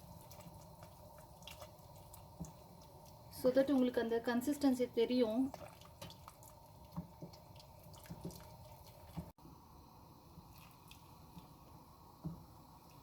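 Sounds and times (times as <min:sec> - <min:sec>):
spoon stirring thick soup: 0:00.0 - 0:03.9, 0:05.5 - 0:09.3.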